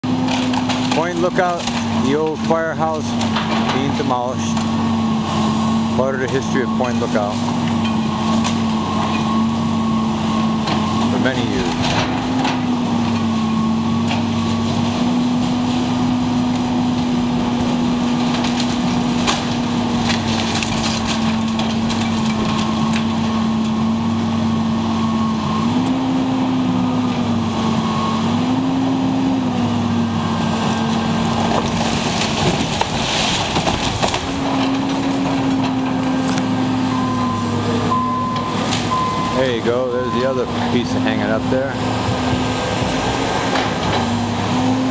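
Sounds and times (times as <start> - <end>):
wood cracking and splintering: 0.0 - 4.8, 10.6 - 13.4, 14.0 - 23.8, 30.5 - 36.9
demolition machine engine: 0.0 - 44.9.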